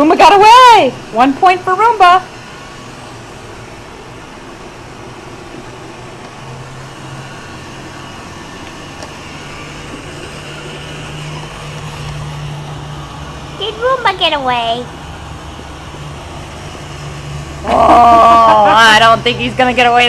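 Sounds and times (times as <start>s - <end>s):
robot vacuum whirring: 5.2s - 14.4s.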